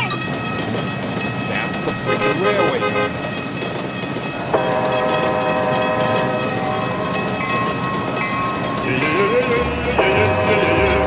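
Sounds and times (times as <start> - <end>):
train running on rails: 0.0 - 11.0
train horn: 2.0 - 3.2, 4.5 - 7.5, 8.9 - 11.0.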